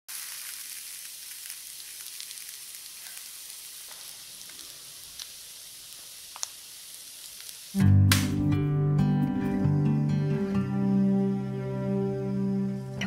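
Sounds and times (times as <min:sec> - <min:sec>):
meat frying in a pan: 0:00.1 - 0:07.8.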